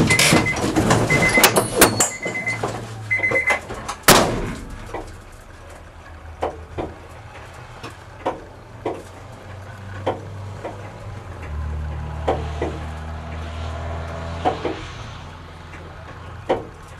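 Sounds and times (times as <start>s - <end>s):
low mechanical hum: 2.2s - 13.5s.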